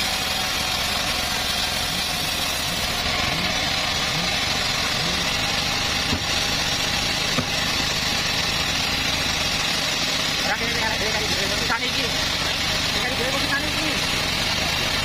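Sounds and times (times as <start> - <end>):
bandsaw mill engine running: 0.0 - 15.0.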